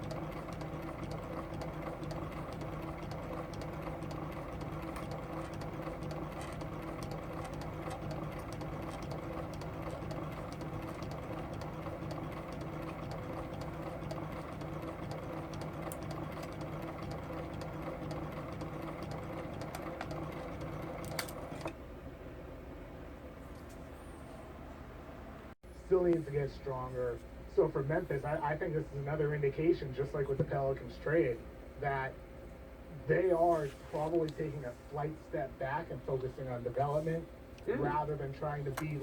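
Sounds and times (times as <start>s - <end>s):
film projector whirring and clattering: 0.0s - 21.8s, 35.8s - 39.0s.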